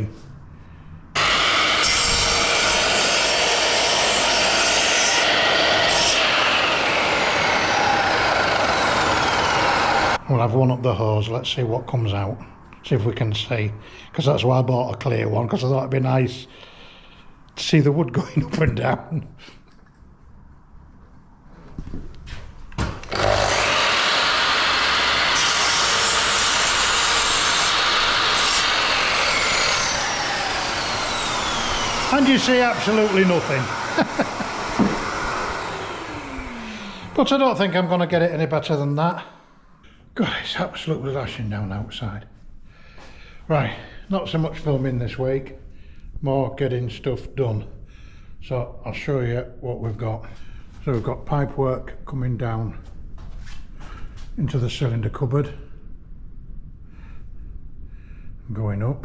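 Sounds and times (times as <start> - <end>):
dust extractor running: 1.2 - 10.2, 23.0 - 38.3
sliding saw cutting wood: 1.2 - 10.2, 23.0 - 38.2.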